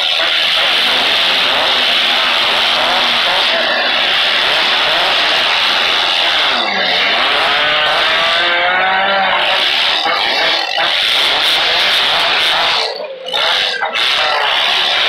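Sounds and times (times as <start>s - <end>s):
rising whine: 0.0s - 10.6s
car engines revving hard: 0.0s - 15.0s.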